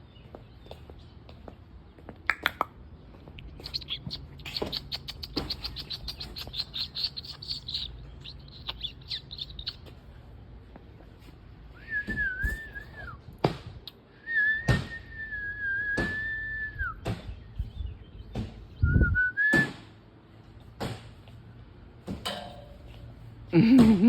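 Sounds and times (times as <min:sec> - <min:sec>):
person whistling held notes: 0:11.8 - 0:13.2, 0:14.2 - 0:17.0, 0:18.8 - 0:19.7
sharp knocks and thuds: 0:13.4 - 0:13.8, 0:17.0 - 0:17.4, 0:18.3 - 0:18.7, 0:20.8 - 0:21.2.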